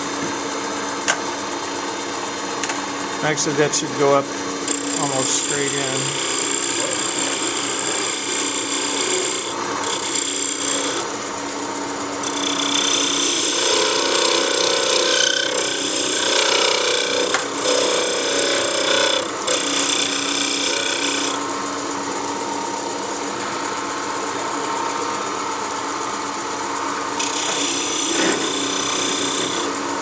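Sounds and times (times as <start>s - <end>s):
wood lathe humming: 0.0s - 25.6s, 26.8s - 30.0s
chisel scraping spinning wood: 3.2s - 11.2s, 12.2s - 21.4s, 27.2s - 29.7s.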